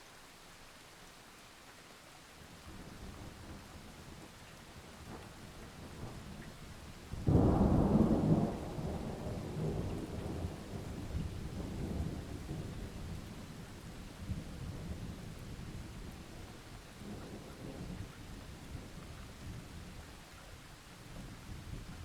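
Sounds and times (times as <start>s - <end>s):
rain falling: 0.0s - 22.0s
thunder rumbling: 7.2s - 12.9s.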